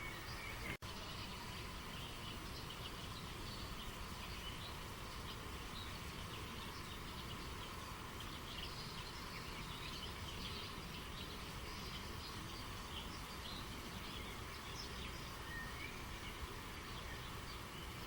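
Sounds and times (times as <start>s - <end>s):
river water flowing: 0.0s - 18.0s
small birds chirping: 0.0s - 18.0s.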